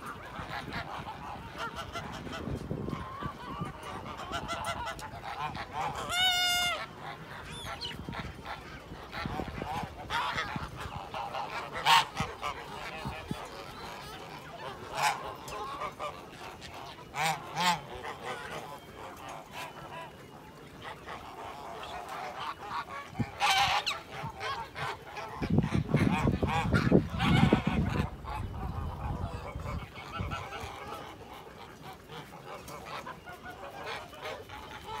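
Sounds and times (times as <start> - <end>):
bird calls: 3.0 - 24.9.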